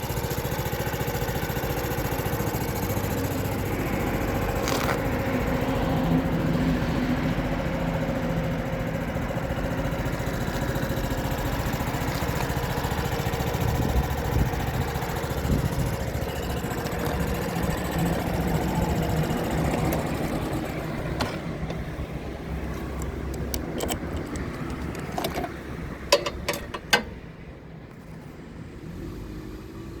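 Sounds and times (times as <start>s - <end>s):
motorcycle engine idling: 0.0s - 27.6s
sharp clicks: 22.8s - 25.6s.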